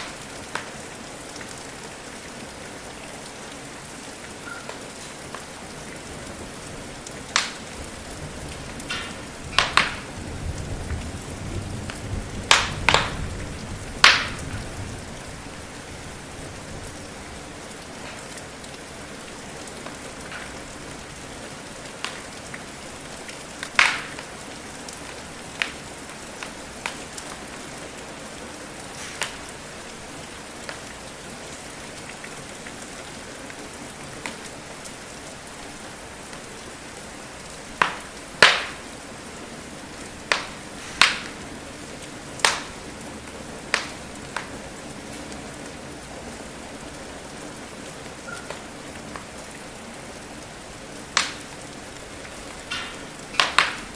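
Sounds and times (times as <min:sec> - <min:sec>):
wood fire popping and crackling: 0:00.0 - 0:03.3, 0:04.1 - 0:35.0, 0:37.3 - 0:46.5, 0:48.1 - 0:49.3, 0:51.0 - 0:53.9
steady rain: 0:00.0 - 0:53.9.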